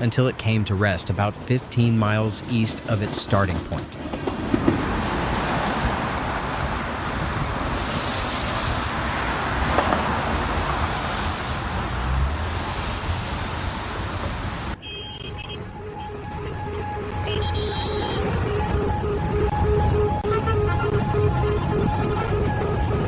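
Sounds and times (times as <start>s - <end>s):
rushing vehicle noise: 0.0s - 23.0s.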